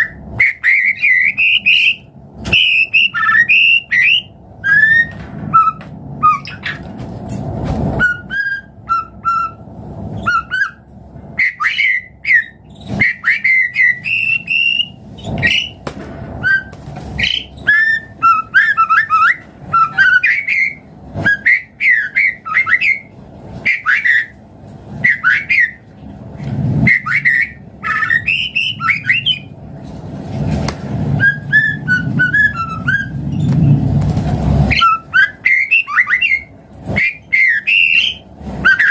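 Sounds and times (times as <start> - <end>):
songbird whistling phrases: 0.0 - 6.8, 8.0 - 9.6, 10.2 - 10.8, 11.4 - 15.8, 16.4 - 24.3, 25.0 - 25.9, 26.9 - 29.5, 31.2 - 33.2, 34.7 - 38.9.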